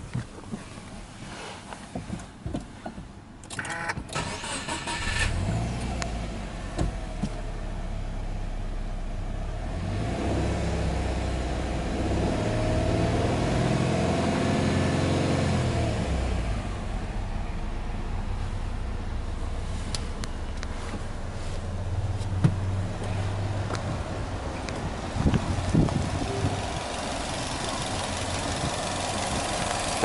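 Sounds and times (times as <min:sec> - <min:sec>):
car engine idling and revving: 0:00.0 - 0:30.0
car starter cranking: 0:03.4 - 0:05.9, 0:25.6 - 0:30.0.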